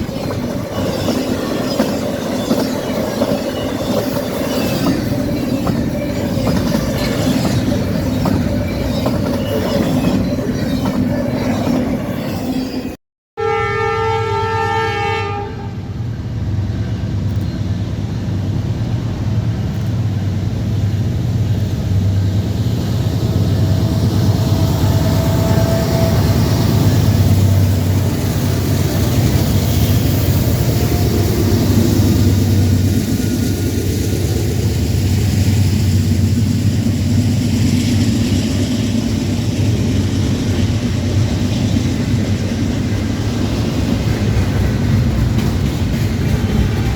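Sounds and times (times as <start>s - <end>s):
rail noise: 0.0s - 46.9s
train rumbling past: 0.0s - 46.9s
train horn: 13.4s - 15.9s, 24.5s - 27.6s.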